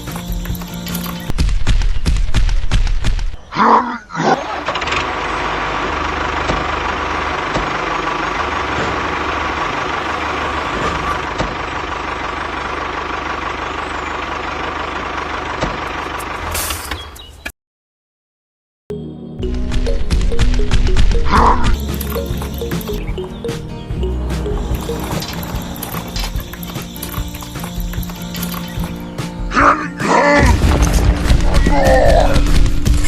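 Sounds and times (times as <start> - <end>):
mini tractor motor running: 4.5 - 16.4.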